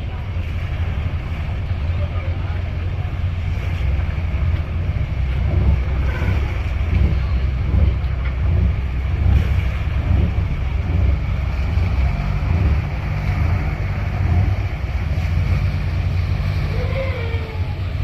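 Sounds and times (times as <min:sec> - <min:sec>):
boat engine idling: 0:00.0 - 0:18.0
wind buffeting microphone: 0:00.0 - 0:18.0.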